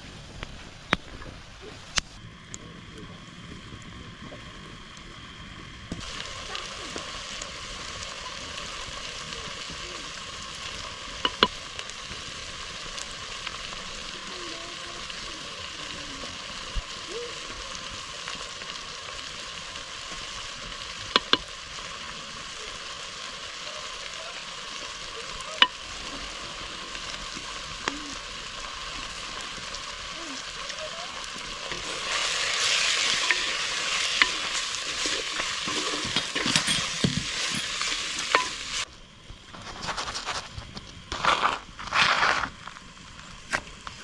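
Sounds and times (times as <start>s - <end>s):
meat sizzling in a pan: 5.2s - 40.4s
utensil clinking against pan: 31.8s - 38.8s.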